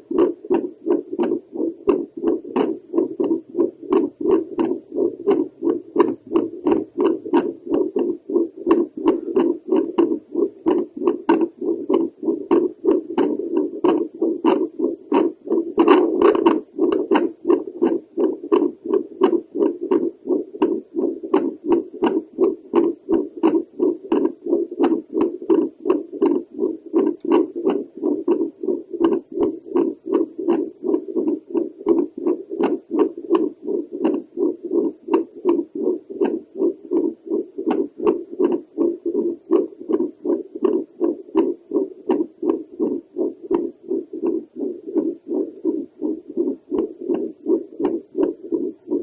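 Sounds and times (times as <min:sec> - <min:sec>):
doppler heartbeat whooshing pulses: 0:00.0 - 0:49.0.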